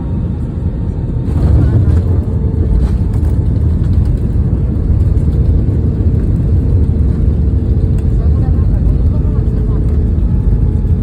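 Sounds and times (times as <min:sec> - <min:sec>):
aircraft engines and airflow rumble: 0:00.0 - 0:11.0.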